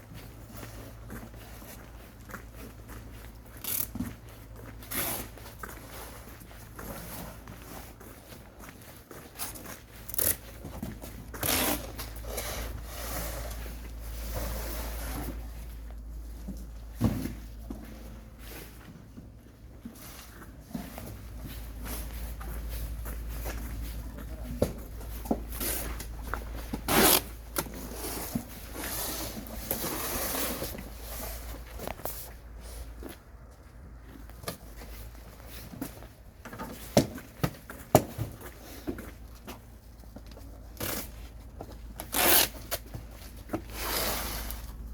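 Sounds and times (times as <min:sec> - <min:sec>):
sweet potatoes rustling and scraping: 0:24.8 - 0:32.9.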